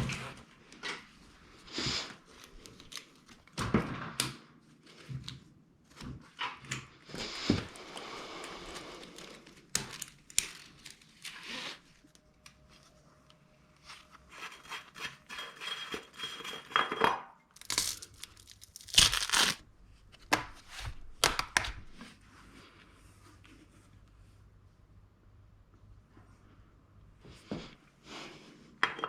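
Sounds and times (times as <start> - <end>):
tearing and crinkling: 8.8 - 13.0, 17.6 - 19.6.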